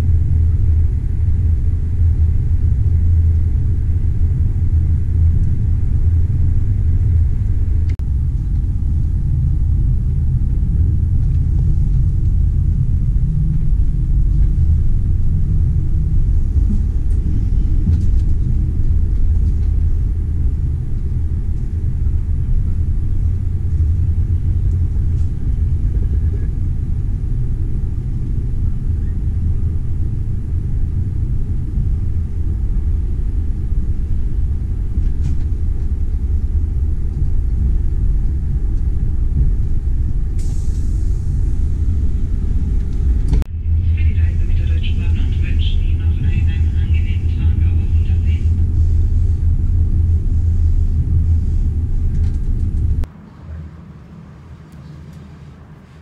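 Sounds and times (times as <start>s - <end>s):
train rumbling along track: 0.0s - 56.0s.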